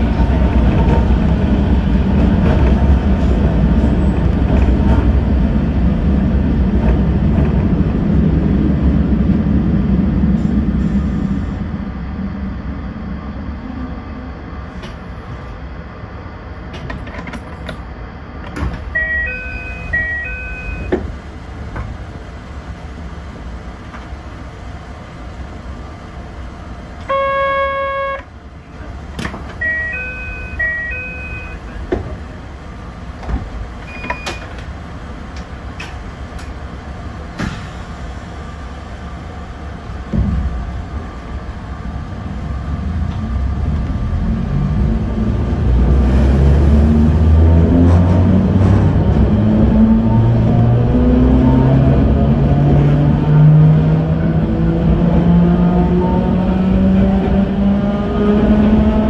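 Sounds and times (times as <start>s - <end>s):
low hum from train cab: 0.0s - 59.0s
electronic chimes: 19.0s - 20.9s
buzzer: 27.1s - 28.2s.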